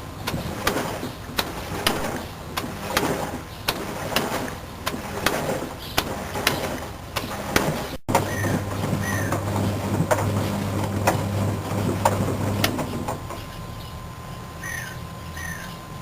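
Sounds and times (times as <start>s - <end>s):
steady hum: 0.0s - 16.0s
washing machine running: 0.0s - 16.0s
sharp mechanical knocks: 0.2s - 13.6s.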